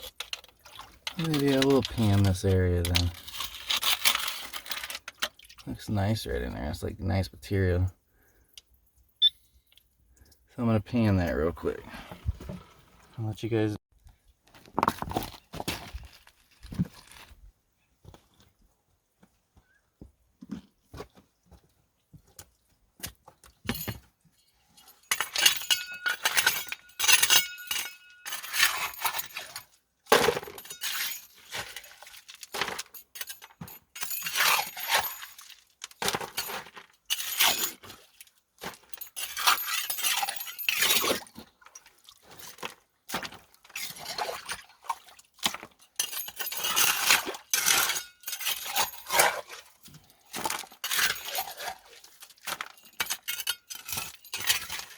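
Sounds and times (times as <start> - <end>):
stones and gravel clattering: 0.0 - 6.1, 14.5 - 18.2, 24.8 - 44.7, 45.4 - 54.9.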